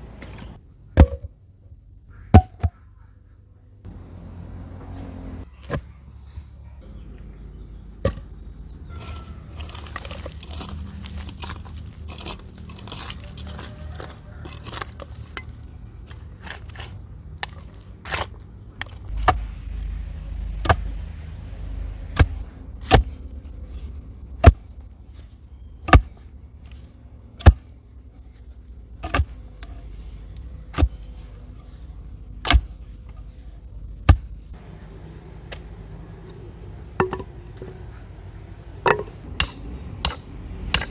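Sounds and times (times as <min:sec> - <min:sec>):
insect buzzing: 0:06.8 - 0:39.3
rustling and scraping: 0:08.9 - 0:21.0
knocks: 0:37.0 - 0:37.8.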